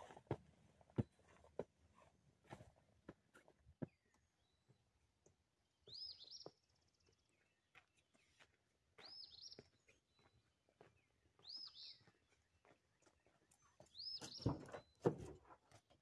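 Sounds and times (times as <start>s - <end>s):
faint footsteps on pavement: 0.0s - 15.6s
songbird chirping: 0.0s - 16.0s.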